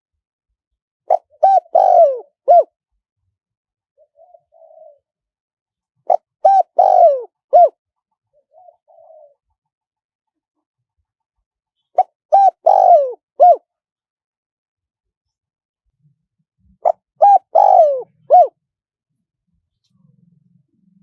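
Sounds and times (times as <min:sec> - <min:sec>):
dove cooing: 0:01.1 - 0:02.8, 0:04.0 - 0:05.1, 0:06.1 - 0:09.8, 0:11.8 - 0:13.7, 0:16.8 - 0:18.6.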